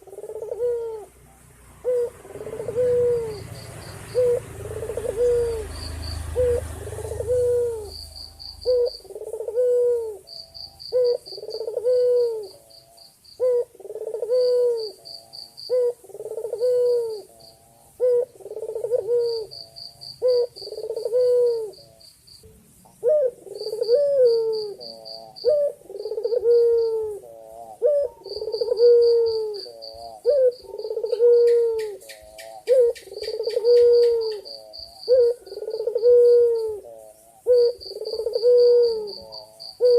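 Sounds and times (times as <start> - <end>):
dove cooing: 0.0 - 39.9
high pulsing insect trill: 0.0 - 39.9.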